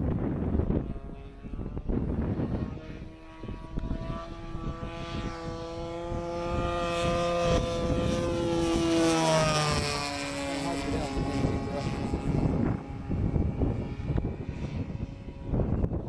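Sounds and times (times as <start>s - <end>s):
model plane engine running: 0.0s - 16.0s
wind on microphone: 0.0s - 16.0s.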